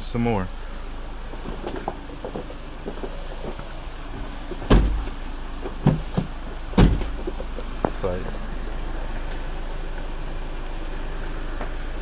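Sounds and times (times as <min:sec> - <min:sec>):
low steady hum: 0:00.0 - 0:12.0
heavy thump: 0:04.1 - 0:08.0.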